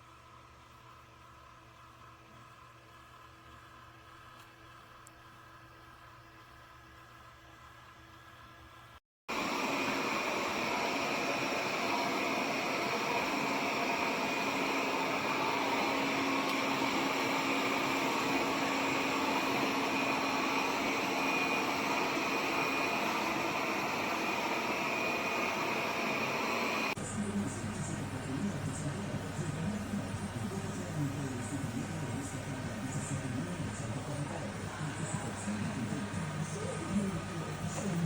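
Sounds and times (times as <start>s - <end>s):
robot vacuum whirring: 9.3s - 27.0s.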